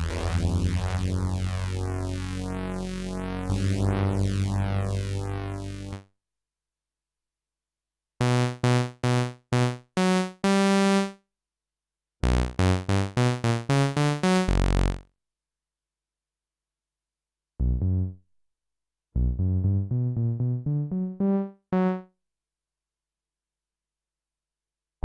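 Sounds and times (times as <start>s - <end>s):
synthesizer bass riffs: 0.0s - 6.0s, 12.2s - 15.0s, 17.6s - 18.2s
synthesizer held filtered tone: 0.0s - 6.0s.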